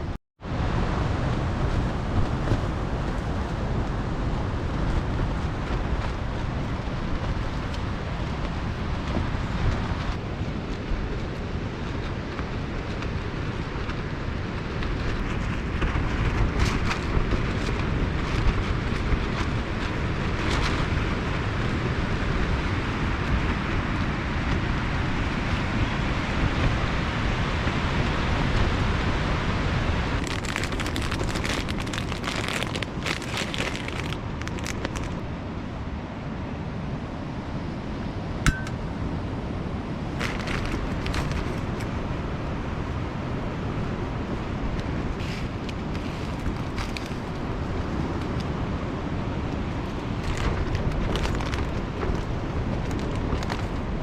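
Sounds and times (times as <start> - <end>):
strong gusty wind: 0.0 - 54.0
heavy rain: 26.2 - 35.3
sharp clink: 38.5 - 38.8.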